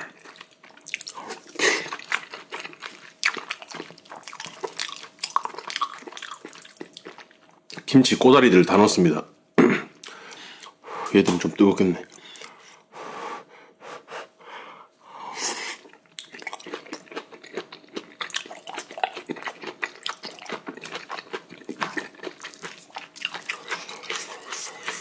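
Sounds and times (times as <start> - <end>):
wet crunchy chewing: 0.0 - 7.8, 15.8 - 25.0.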